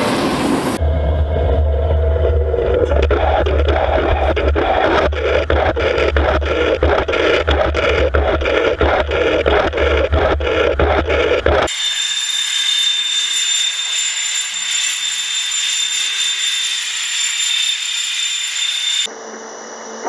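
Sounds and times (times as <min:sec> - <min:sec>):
train wheels rumbling on rails: 0:00.0 - 0:11.6
high steady whine: 0:00.8 - 0:11.7.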